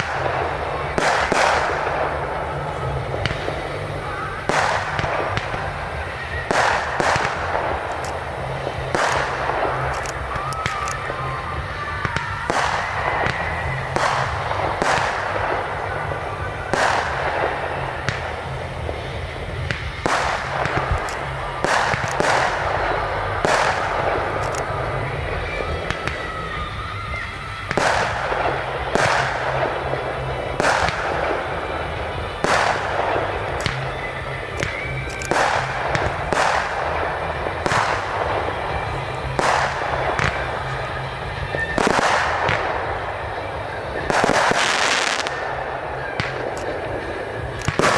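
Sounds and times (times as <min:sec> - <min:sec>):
firework shells bursting: 0:00.0 - 0:47.9
fireworks crackling: 0:00.0 - 0:47.9.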